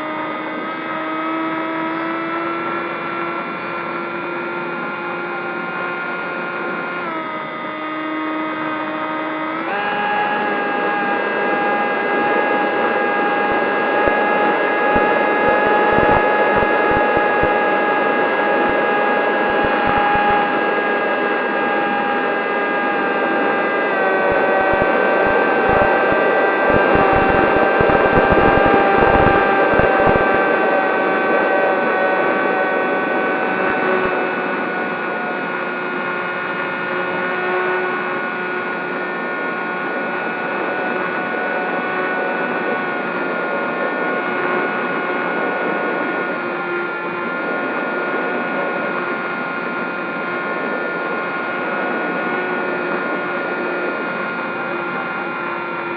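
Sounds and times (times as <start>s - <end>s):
electric motors and propellers whining: 0.0s - 40.6s.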